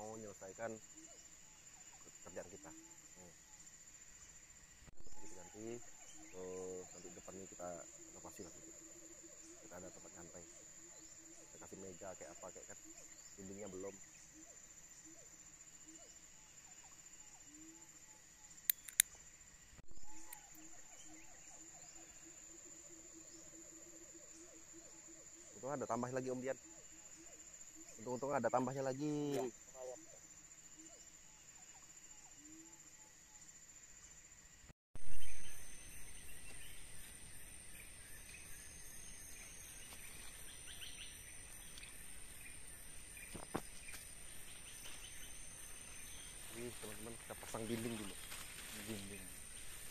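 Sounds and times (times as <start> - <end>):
insects chirping: 0.0 - 49.9
thump or rustle: 43.2 - 44.1.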